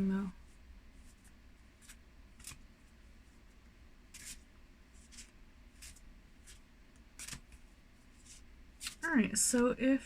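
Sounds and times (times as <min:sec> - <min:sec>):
low room hum: 0:00.0 - 0:10.0
cards rustling and sliding: 0:01.0 - 0:02.6, 0:04.1 - 0:06.6, 0:07.2 - 0:09.1.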